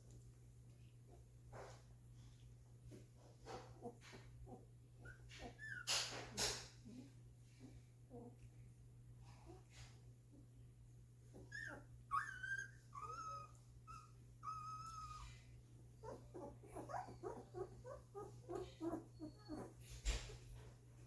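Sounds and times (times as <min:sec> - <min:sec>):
puppies whimpering: 0:03.5 - 0:06.6, 0:11.3 - 0:20.8.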